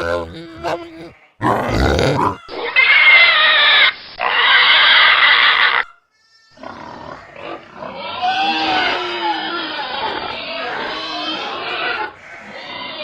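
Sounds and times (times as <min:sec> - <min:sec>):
pig squealing: 0:00.0 - 0:06.0, 0:06.6 - 0:13.0
animal noises: 0:00.0 - 0:13.0.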